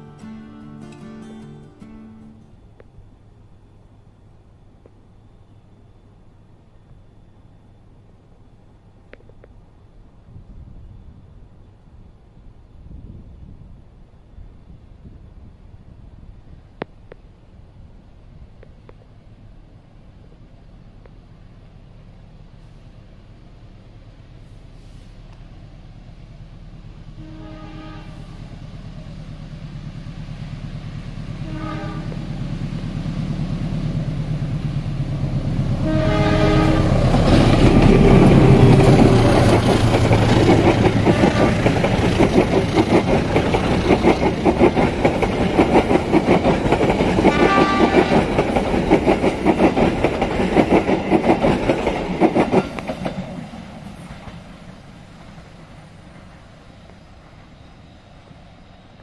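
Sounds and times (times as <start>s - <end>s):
diesel locomotive engine rumble: 0.0s - 59.0s
train horn blasts: 27.1s - 28.6s, 31.4s - 32.5s, 35.7s - 39.2s, 41.0s - 41.8s, 47.2s - 48.4s
train wheels clattering over rails: 28.9s - 57.1s.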